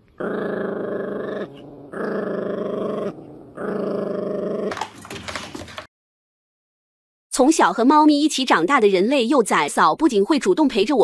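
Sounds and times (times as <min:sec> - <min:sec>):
dog growling: 0:00.0 - 0:04.8.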